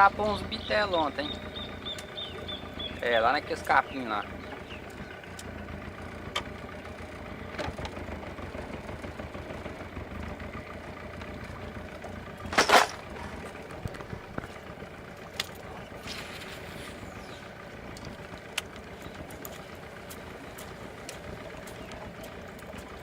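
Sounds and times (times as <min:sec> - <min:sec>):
outboard motor running: 0:00.0 - 0:23.0.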